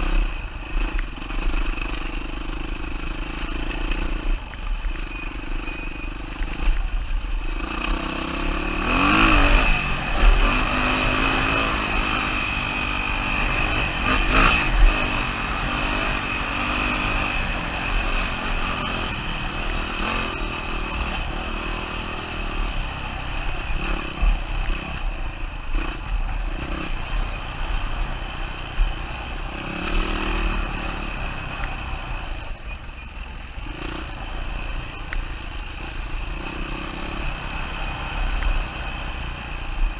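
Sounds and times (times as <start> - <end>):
dirt bike engine revving: 7.5 - 25.1, 25.7 - 32.4, 33.6 - 39.8.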